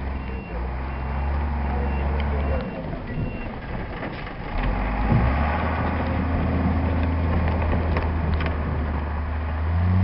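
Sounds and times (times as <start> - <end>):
truck engine running: 0.0 - 10.0
reversing beep: 0.1 - 3.6.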